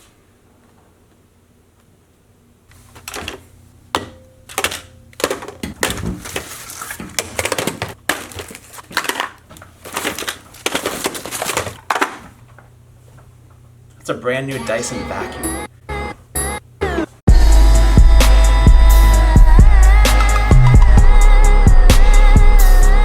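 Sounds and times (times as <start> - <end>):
packaging crinkling and tearing: 5.2 - 12.6.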